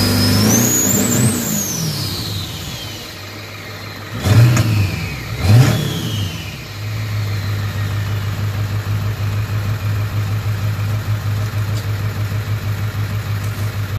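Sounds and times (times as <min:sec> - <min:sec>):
turbo whistling: 0:00.0 - 0:09.4
diesel engine revving and idling: 0:00.0 - 0:13.9.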